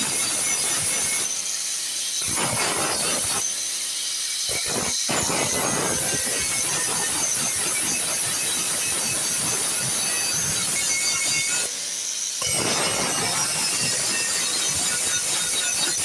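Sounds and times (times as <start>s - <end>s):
hand tool rasping and scraping: 0.0s - 3.5s.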